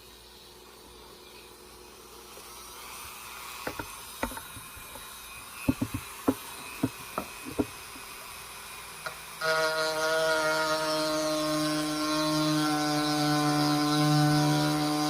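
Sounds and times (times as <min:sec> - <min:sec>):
rotary tool high whine: 0:00.0 - 0:15.0
sharp knocks and taps: 0:05.7 - 0:07.8.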